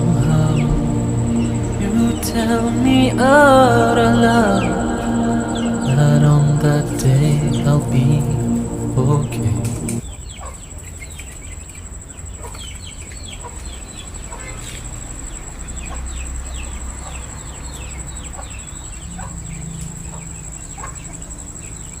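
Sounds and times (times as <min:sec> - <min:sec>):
low rumble: 0:00.0 - 0:10.0
steady high-pitched whine: 0:00.0 - 0:10.1.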